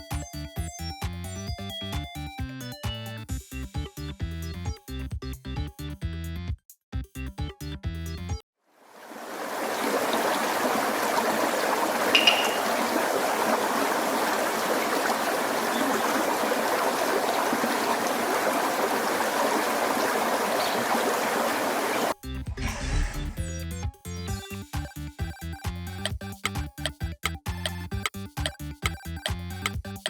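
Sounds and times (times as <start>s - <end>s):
flowing water rushing: 8.8s - 22.2s
brief high tone: 12.2s - 12.8s.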